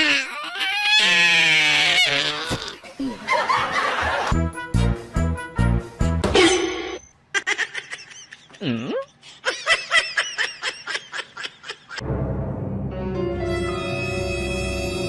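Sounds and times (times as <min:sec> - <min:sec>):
background music: 0:04.2 - 0:06.8, 0:12.0 - 0:15.0
person giggling: 0:07.4 - 0:12.0.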